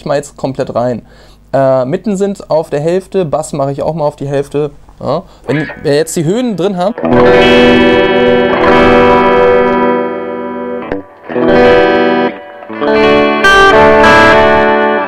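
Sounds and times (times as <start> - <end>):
clean electric guitar chords: 5.5 - 15.0.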